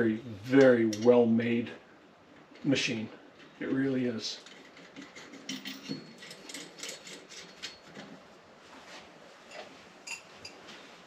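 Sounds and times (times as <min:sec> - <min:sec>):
small metal parts clicking: 0:04.4 - 0:08.0.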